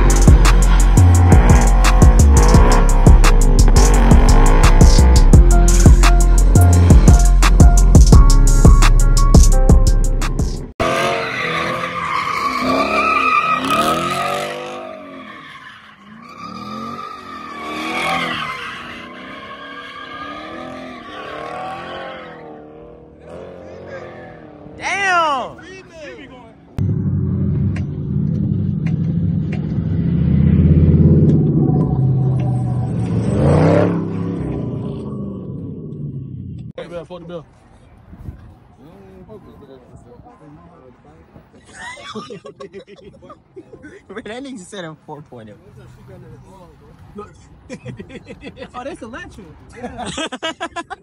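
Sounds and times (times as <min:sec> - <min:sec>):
car engine revving: 0:00.0 - 0:08.8, 0:10.4 - 0:15.4, 0:26.7 - 0:36.8
music with heavy drum beat: 0:00.0 - 0:10.7
tyres squealing: 0:11.0 - 0:22.6.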